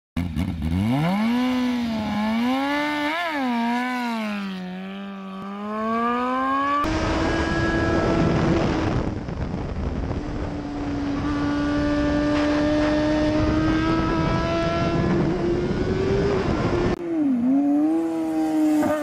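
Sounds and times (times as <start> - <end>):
motorcycle engine revving: 0.2 - 19.0
wind rush: 6.9 - 17.0.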